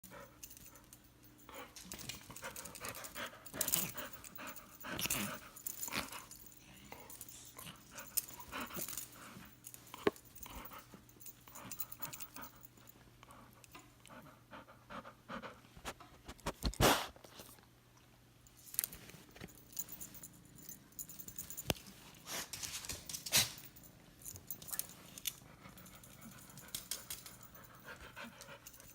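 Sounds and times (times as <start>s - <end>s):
dog panting heavily: 1.4s - 12.7s, 13.3s - 15.9s, 25.4s - 28.9s.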